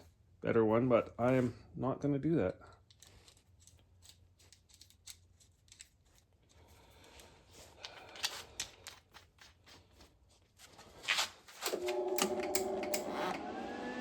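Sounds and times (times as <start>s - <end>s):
wire-feed motor whine: 11.7s - 14.0s.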